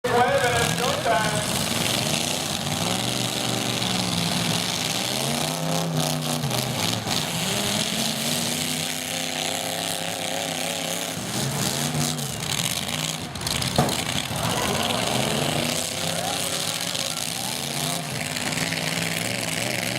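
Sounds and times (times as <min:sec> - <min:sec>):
truck engines revving: 0:00.0 - 0:19.9.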